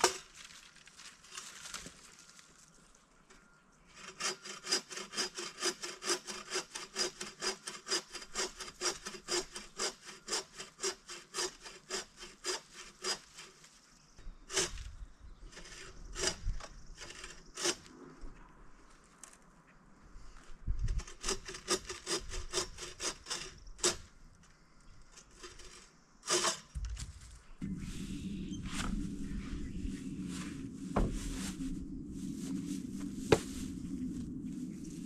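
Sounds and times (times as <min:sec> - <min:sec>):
hand saw cutting wood: 0:04.0 - 0:13.7, 0:14.5 - 0:14.9, 0:15.5 - 0:17.9, 0:21.0 - 0:24.0, 0:25.2 - 0:26.7
dull thuds: 0:30.4 - 0:31.8, 0:33.0 - 0:33.8.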